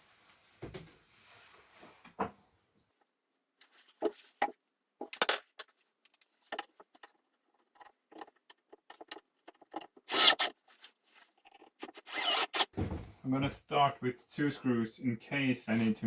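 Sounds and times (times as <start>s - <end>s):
hardware and wood clicking: 5.0s - 10.6s.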